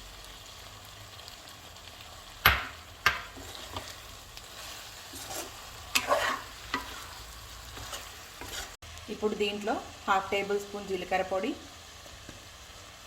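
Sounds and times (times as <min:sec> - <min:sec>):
food sizzling in oil: 0:00.0 - 0:13.0
utensil knocking on pan: 0:02.4 - 0:03.4
utensil scraping pan: 0:03.1 - 0:08.8.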